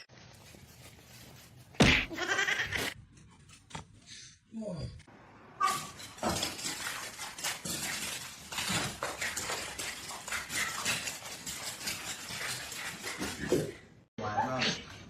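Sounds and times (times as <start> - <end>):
small hard objects clattering: 5.9 - 13.7.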